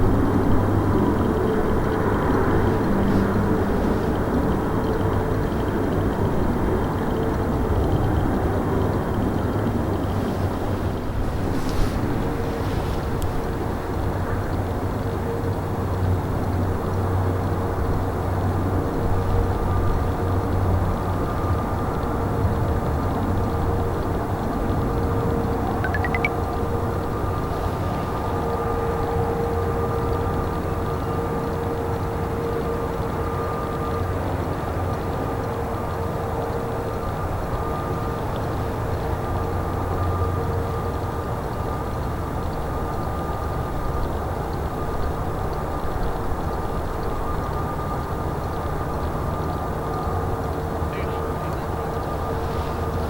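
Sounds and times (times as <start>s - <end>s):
quick rising chirps: 25.9s - 26.3s.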